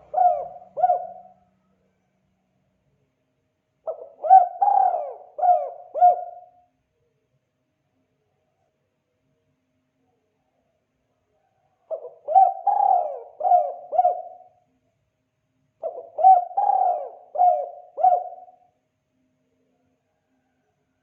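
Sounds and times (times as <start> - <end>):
dove cooing: 0.0 - 1.4, 3.8 - 6.6, 11.8 - 14.6, 15.8 - 18.7.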